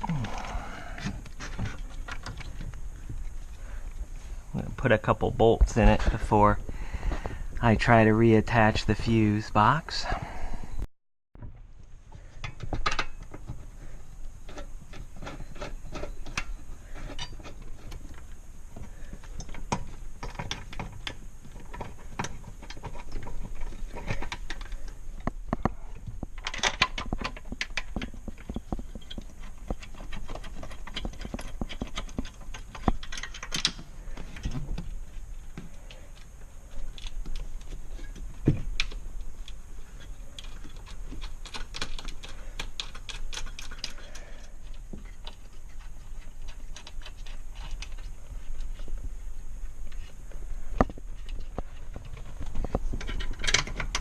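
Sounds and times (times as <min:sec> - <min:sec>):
hand tool clicks and metallic knocks: 0:12.4 - 0:13.6, 0:18.8 - 0:34.9, 0:35.5 - 0:48.1, 0:50.8 - 0:54.0.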